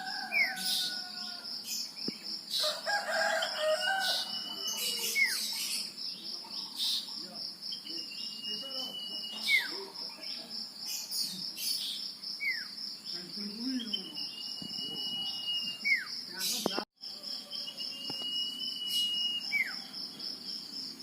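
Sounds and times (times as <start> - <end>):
insects droning: 0.0 - 21.0
bird whistling song: 4.2 - 6.0, 7.8 - 9.9, 13.6 - 16.7, 17.4 - 19.9.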